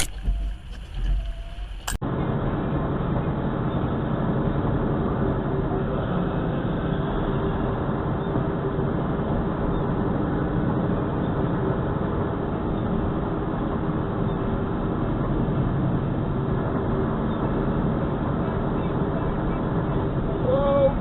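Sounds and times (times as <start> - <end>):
faint constant hum: 0.0 - 21.0
road and engine rumble: 0.0 - 21.0.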